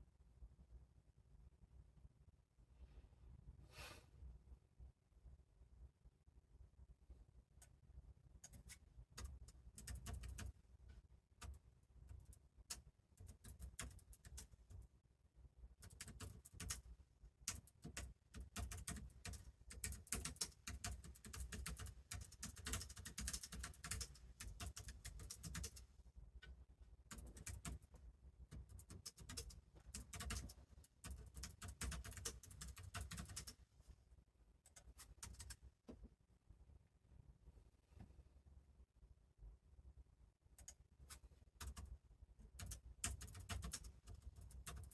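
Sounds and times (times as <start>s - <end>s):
typing on keyboard: 8.4s - 10.6s, 11.3s - 14.9s, 15.8s - 25.9s, 27.1s - 33.6s, 34.7s - 35.6s, 40.6s - 44.9s.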